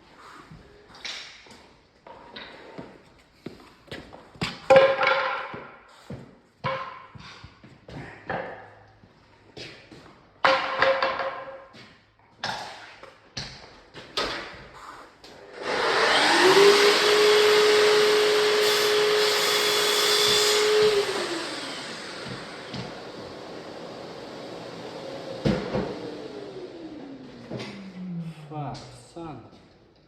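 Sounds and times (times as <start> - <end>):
electric motor spinning: 15.4 - 28.2.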